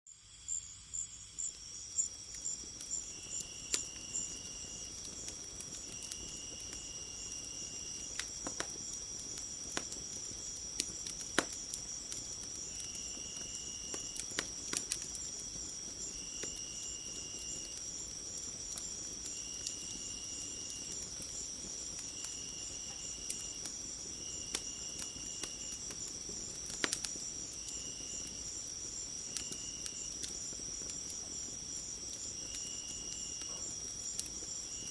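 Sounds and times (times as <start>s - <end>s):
crickets trilling: 0.1s - 34.9s
wood fire crackling: 1.4s - 34.9s.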